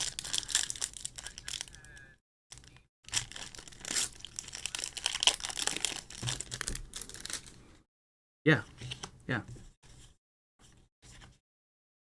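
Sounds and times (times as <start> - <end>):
plastic packaging crinkling and tearing: 0.0 - 1.9, 2.5 - 7.6.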